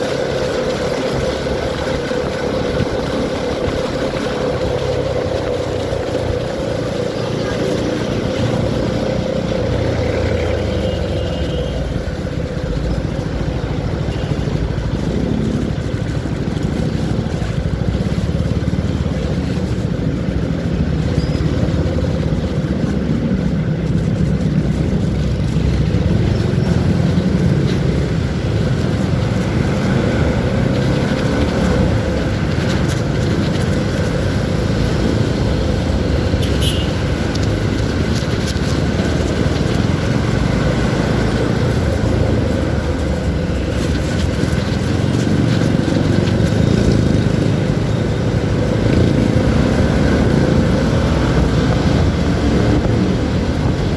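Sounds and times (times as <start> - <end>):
loud road noise: 0.0 - 53.9
motorcycle engine running: 0.0 - 53.9.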